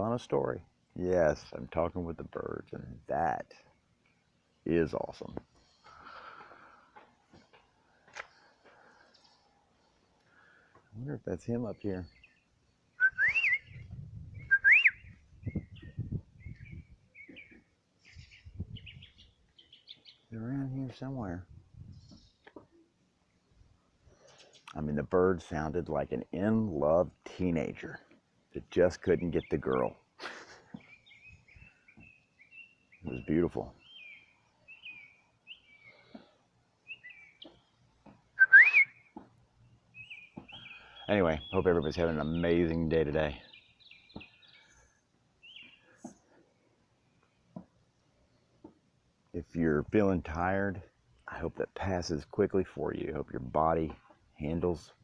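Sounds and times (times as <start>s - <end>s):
faint bird chirps: 7.5s - 21.0s, 30.6s - 47.6s
loud sliding whistled notes: 13.0s - 13.7s, 14.5s - 15.0s, 38.4s - 38.9s.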